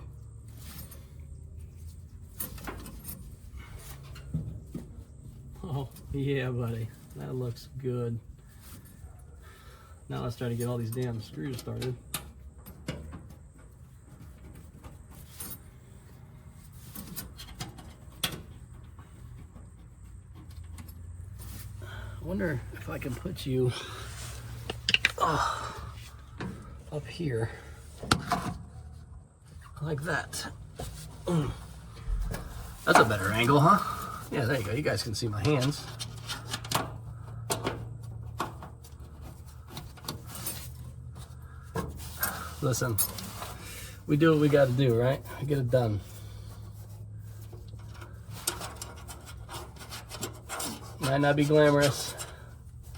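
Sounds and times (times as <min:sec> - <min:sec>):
low steady hum: 0:00.0 - 0:52.9
clicks and taps of screws: 0:24.7 - 0:25.2.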